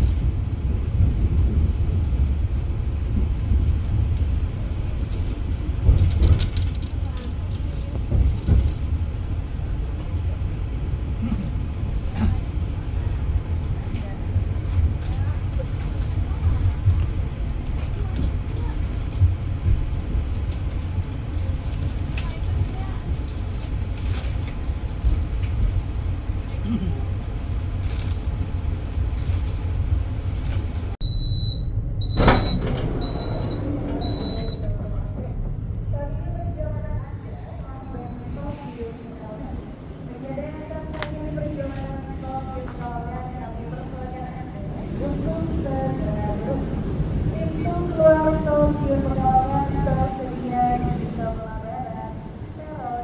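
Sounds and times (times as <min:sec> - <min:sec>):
train rumbling on rails: 0:00.0 - 0:53.0
high electronic beep: 0:31.0 - 0:34.6.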